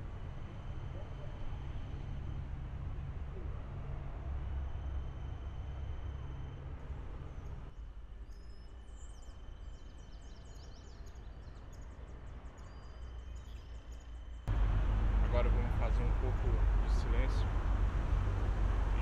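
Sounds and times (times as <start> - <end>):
low background rumble: 0.0 - 19.0
small birds chirping: 7.3 - 17.6.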